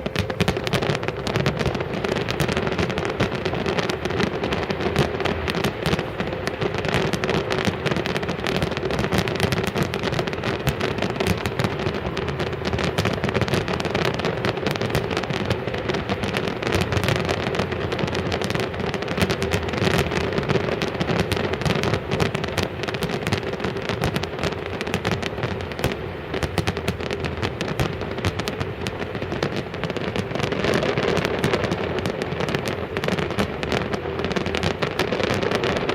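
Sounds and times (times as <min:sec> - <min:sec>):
fireworks banging and crackling: 0:00.0 - 0:35.9.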